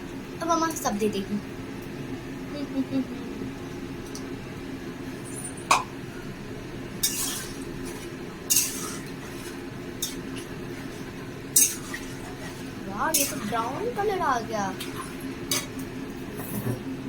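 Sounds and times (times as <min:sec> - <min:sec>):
steady low hum: 0:00.0 - 0:17.0
spoon scraping a cooking pan: 0:07.0 - 0:11.0, 0:11.6 - 0:13.6.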